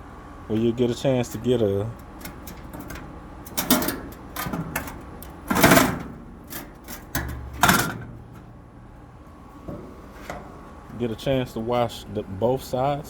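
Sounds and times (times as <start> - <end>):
metal grill grates clattering: 0.5 - 11.8
loud metal clank: 2.7 - 9.0.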